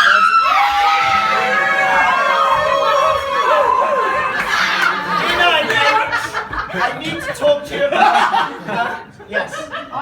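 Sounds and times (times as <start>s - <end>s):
group of people chattering: 1.2s - 10.0s
people laughing: 2.6s - 10.0s.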